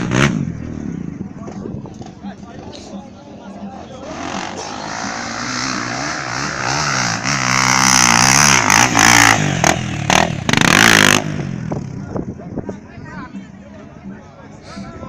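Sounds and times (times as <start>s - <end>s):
motorcycle engine revving: 0.0s - 2.7s, 3.8s - 12.2s.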